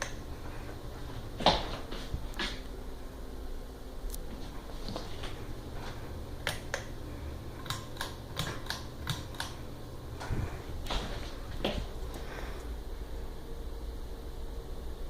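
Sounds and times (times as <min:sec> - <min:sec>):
ceiling fan humming: 0:00.0 - 0:15.0
sharp irregular clicks: 0:07.6 - 0:09.6.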